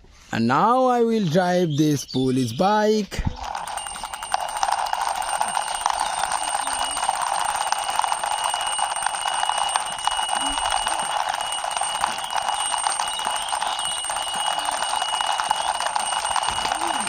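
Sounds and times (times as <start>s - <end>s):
toy motorbike rattling buzz: 3.4s - 17.0s.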